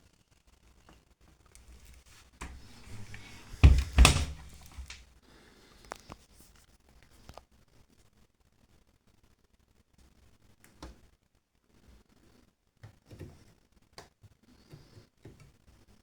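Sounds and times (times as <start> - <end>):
washing machine rumbling: 1.6 - 5.0
heavy thuds: 1.7 - 5.0.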